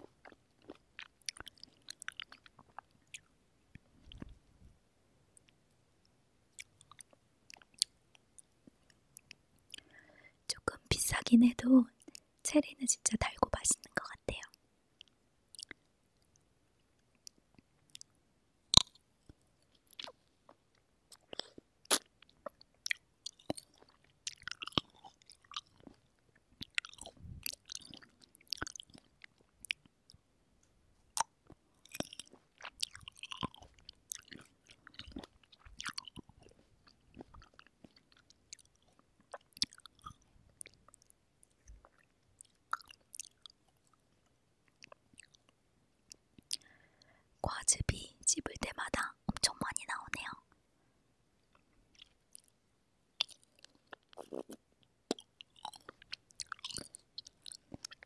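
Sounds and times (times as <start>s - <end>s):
juicy chewing with mouth clicks: 0.0s - 4.4s, 6.5s - 10.1s, 15.0s - 30.2s, 31.1s - 47.2s, 51.5s - 52.6s, 53.2s - 58.0s.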